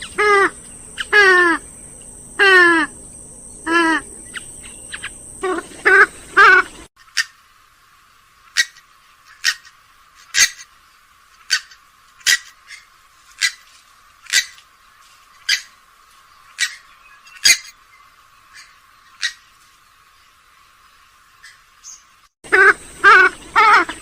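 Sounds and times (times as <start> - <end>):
swamphen short sharp calls: 0.0 - 3.0, 3.6 - 7.4, 11.4 - 13.7, 14.3 - 14.6, 15.4 - 15.8, 16.5 - 17.8, 18.5 - 19.5, 21.4 - 24.0.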